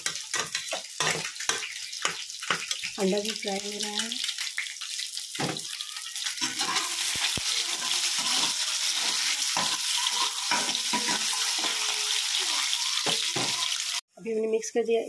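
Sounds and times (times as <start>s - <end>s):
eggs sizzling in hot oil: 0.0s - 14.1s
metal turner scraping pan: 6.4s - 14.0s.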